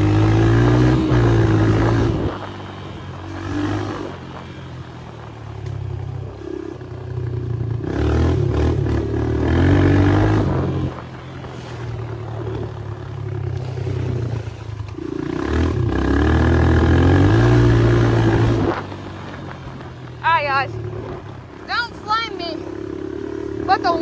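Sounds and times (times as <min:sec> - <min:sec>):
dirt bike engine accelerating: 0:00.0 - 0:24.0.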